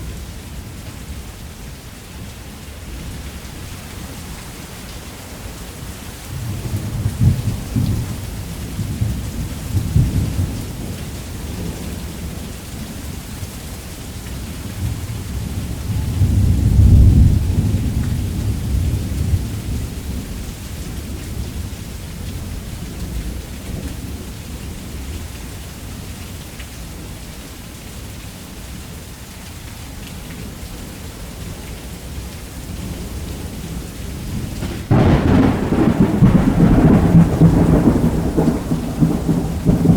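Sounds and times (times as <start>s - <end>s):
heavy rain: 0.0s - 39.9s
thunder rumbling: 14.8s - 20.3s, 32.8s - 39.9s.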